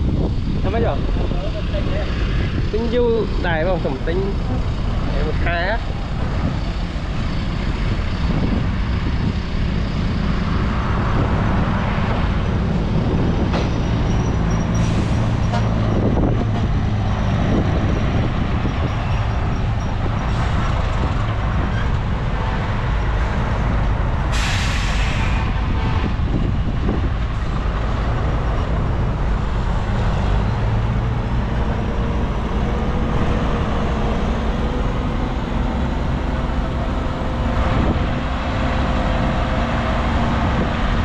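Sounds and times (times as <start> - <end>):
heavy diesel machinery droning: 0.0 - 41.0
short burst of hiss: 24.3 - 25.5.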